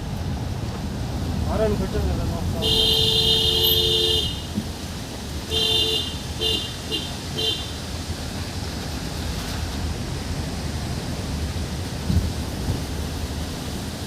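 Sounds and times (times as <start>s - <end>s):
car driving on road: 0.0s - 14.0s
vehicle horn honking: 2.6s - 4.5s, 5.5s - 7.7s.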